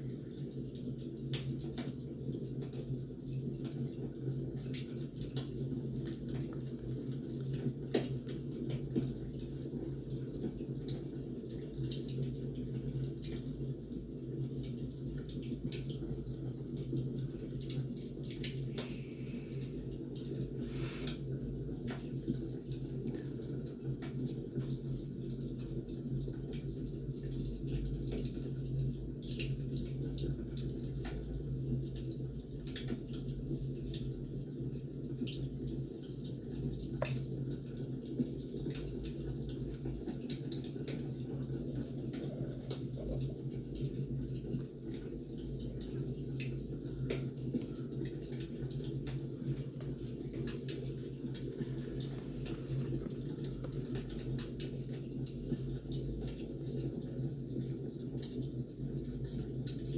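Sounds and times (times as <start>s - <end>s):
wood fire crackling: 40.8s - 56.8s.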